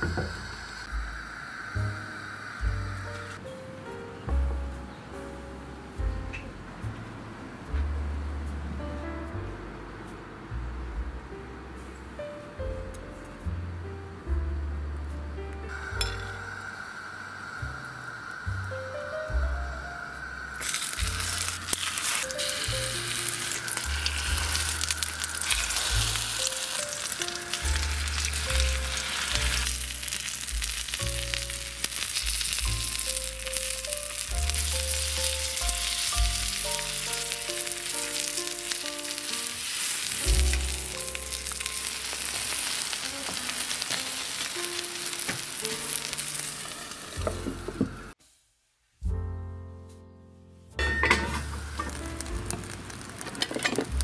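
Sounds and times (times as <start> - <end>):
food sizzling in hot oil: 0.0 - 3.5, 15.7 - 48.4, 50.8 - 54.0.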